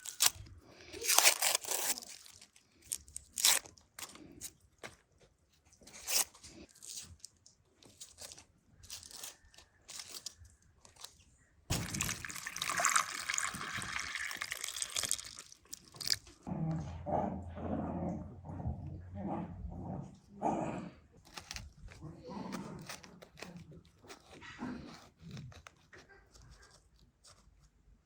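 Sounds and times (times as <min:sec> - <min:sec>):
crunching and clicking: 0:00.0 - 0:12.6, 0:13.3 - 0:16.5, 0:21.1 - 0:28.0
water splashing: 0:11.7 - 0:15.6
dog growling: 0:16.4 - 0:21.2, 0:21.9 - 0:23.5.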